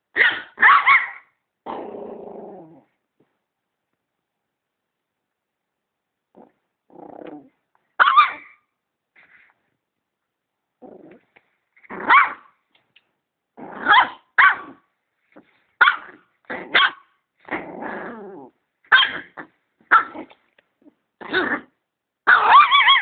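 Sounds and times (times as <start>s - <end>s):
dog barking: 0.2s - 1.3s, 8.0s - 8.6s, 12.0s - 12.5s, 13.8s - 14.8s, 15.8s - 17.1s, 18.9s - 20.3s, 22.3s - 23.0s
dog growling: 1.7s - 2.9s, 6.3s - 7.6s, 10.8s - 12.1s, 17.4s - 18.6s.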